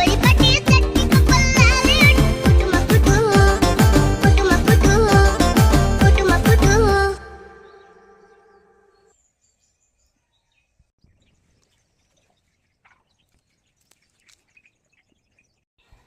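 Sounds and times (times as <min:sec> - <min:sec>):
faint bird chirps: 0:07.5 - 0:16.0.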